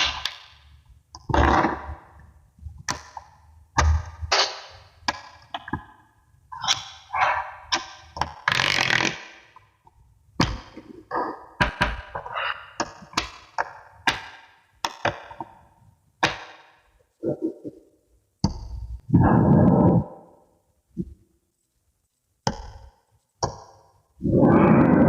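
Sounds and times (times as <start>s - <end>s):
magnetic balls clacking together: 18.4s - 19.0s.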